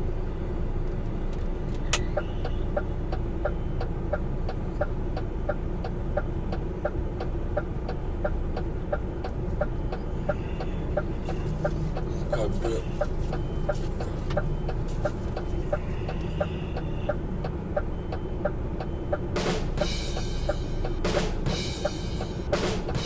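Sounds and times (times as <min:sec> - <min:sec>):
diesel truck engine running: 0:00.0 - 0:23.0
turn signal relay ticking: 0:01.3 - 0:23.0.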